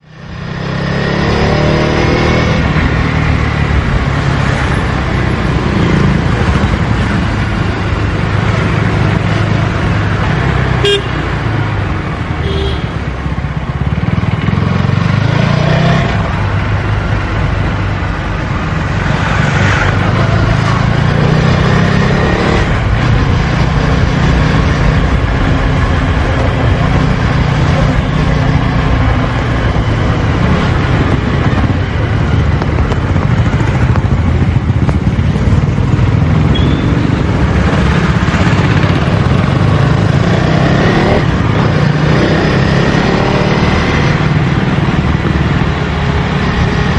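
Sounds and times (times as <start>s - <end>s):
motorcycle engine accelerating: 0.2s - 11.8s, 13.3s - 46.9s
vehicle horn toots: 10.8s - 11.2s, 12.4s - 12.9s, 36.5s - 36.9s.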